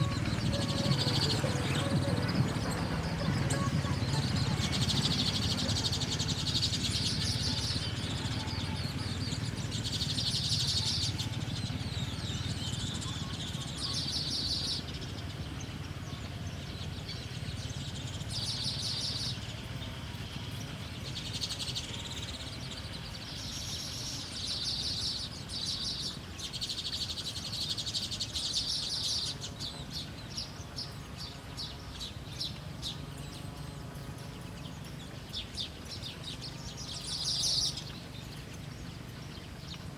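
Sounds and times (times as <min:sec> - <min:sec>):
low background rumble: 0:00.0 - 0:24.4
small bird chirping: 0:00.0 - 0:39.9.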